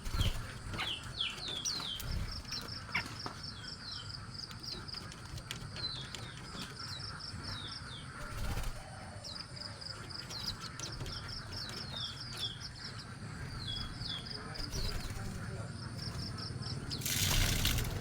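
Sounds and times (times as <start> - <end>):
small birds chirping: 0.0 - 18.0
wing flutter rustling: 14.6 - 15.5, 16.9 - 18.0.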